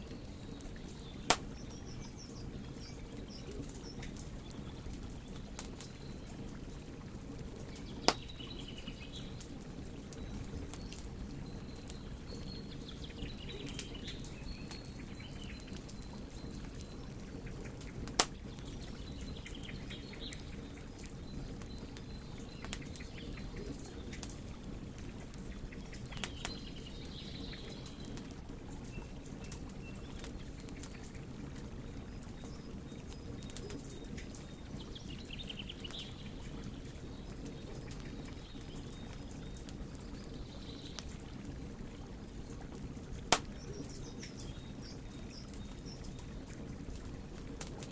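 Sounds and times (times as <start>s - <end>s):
low rustle of fire: 0.0s - 47.9s
wood fire crackling: 0.0s - 47.9s
loud crack of burning wood: 0.2s - 1.8s, 7.6s - 8.4s, 17.8s - 18.8s, 26.0s - 26.6s, 42.0s - 43.7s, 46.1s - 47.9s.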